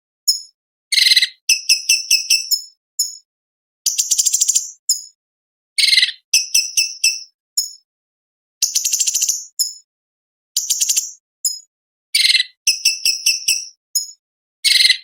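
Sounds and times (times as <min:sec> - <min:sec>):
bird singing sharp chirps: 0:08.6 - 0:09.8, 0:10.6 - 0:15.0.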